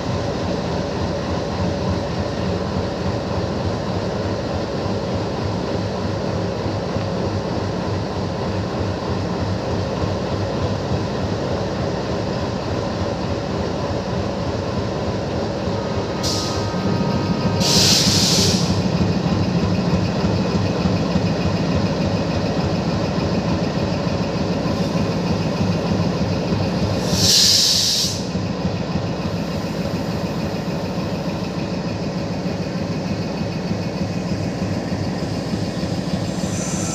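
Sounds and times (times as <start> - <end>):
diesel locomotive engine running: 0.0 - 36.9
air hissing: 16.2 - 16.8, 17.6 - 18.9, 26.9 - 28.4, 35.5 - 36.9.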